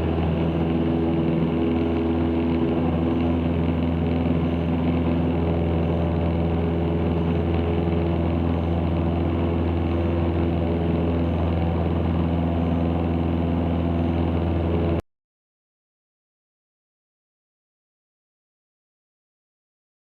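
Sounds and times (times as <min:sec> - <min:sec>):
aircraft engine and propeller droning: 0:00.0 - 0:15.0.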